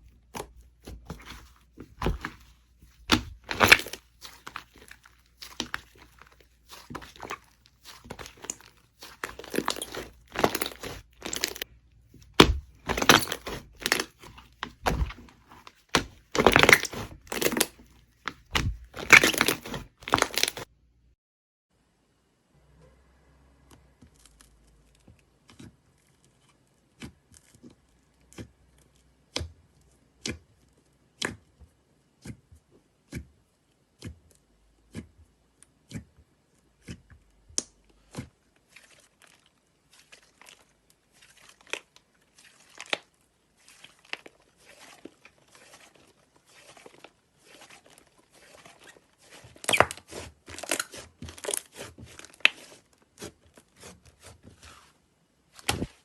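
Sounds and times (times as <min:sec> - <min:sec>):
slime popping and crackling: 0:01.0 - 0:11.7, 0:12.4 - 0:20.7.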